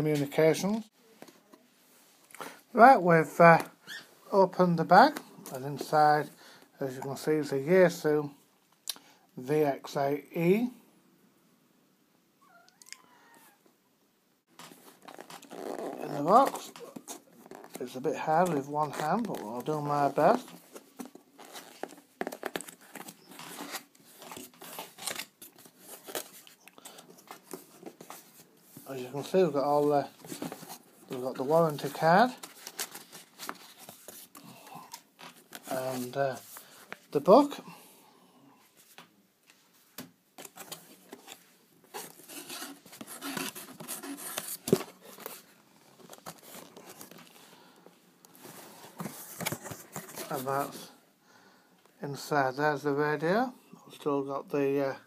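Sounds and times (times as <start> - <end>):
packaging rustling and crinkling: 14.5 - 28.5, 29.2 - 37.1, 40.4 - 47.4.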